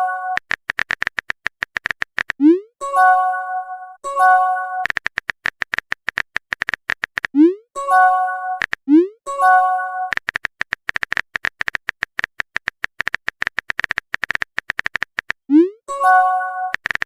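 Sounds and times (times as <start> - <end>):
phone keyboard typing clicks: 0.3 - 2.5, 4.8 - 7.4, 8.6 - 9.0, 10.1 - 15.5, 16.2 - 17.0
phone chime: 2.8 - 4.9, 7.8 - 8.6, 9.3 - 10.2, 15.9 - 16.8.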